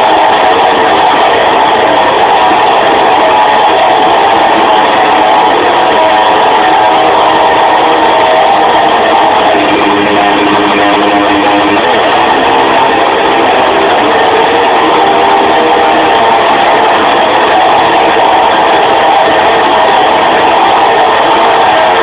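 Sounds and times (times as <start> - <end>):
strummed electric guitar: 0.0 - 22.0.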